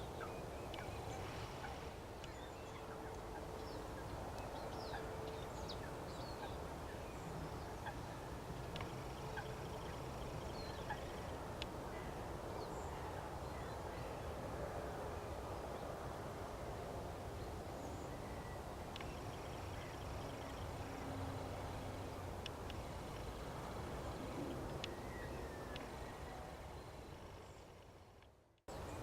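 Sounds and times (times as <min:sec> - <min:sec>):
wetland birds calling: 0:00.0 - 0:11.4
outdoor background hiss: 0:00.0 - 0:29.0.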